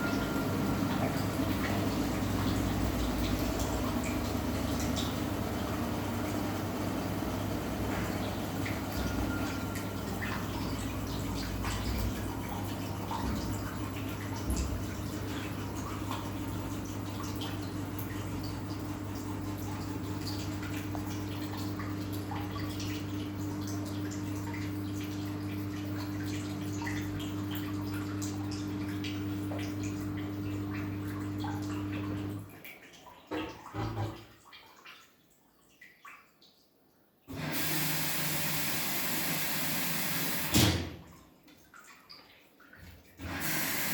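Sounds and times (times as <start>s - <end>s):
washing machine running: 0.0s - 32.6s, 37.3s - 41.2s, 42.8s - 43.9s.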